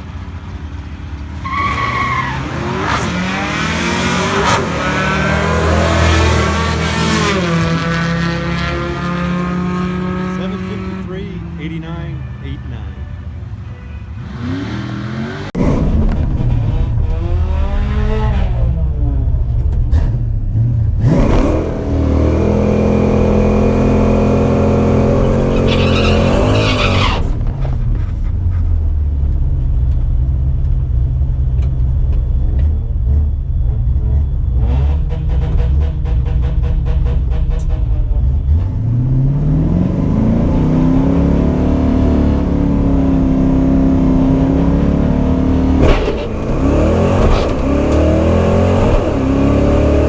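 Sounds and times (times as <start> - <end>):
car engine revving hard: 1.4 - 12.8, 14.2 - 19.3, 19.9 - 27.5, 34.1 - 50.0.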